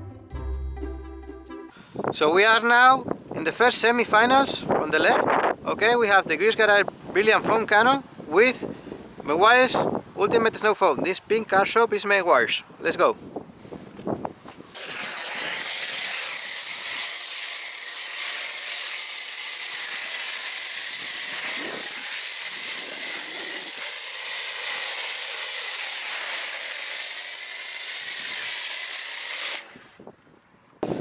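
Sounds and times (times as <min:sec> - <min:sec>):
foam cannon spraying hiss: 0:14.7 - 0:30.0.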